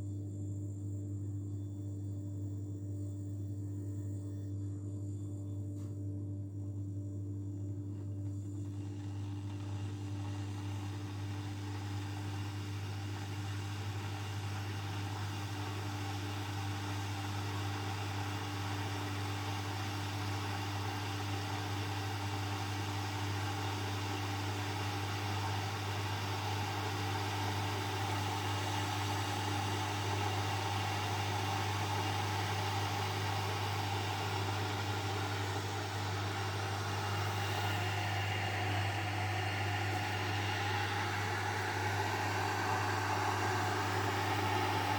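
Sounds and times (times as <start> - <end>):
electric heater hum: 0.0 - 44.9
water heating hiss: 7.9 - 44.9.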